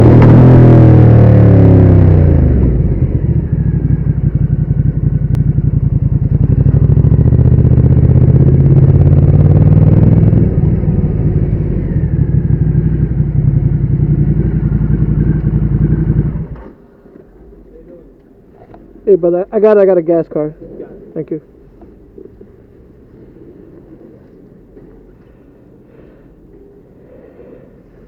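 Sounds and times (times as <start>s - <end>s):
motorcycle engine idling: 0.9s - 16.7s.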